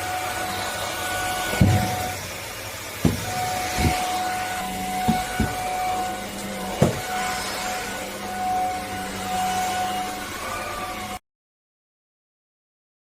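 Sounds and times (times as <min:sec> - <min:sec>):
stick vacuum motor whine: 0:00.0 - 0:11.2
dull thumps: 0:01.5 - 0:02.3, 0:03.0 - 0:04.3, 0:05.0 - 0:05.8, 0:06.8 - 0:07.2.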